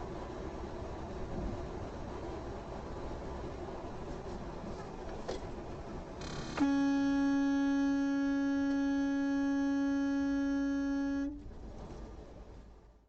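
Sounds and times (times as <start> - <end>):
road noise: 0.0 - 13.0
vehicle horn long blast: 6.2 - 11.4.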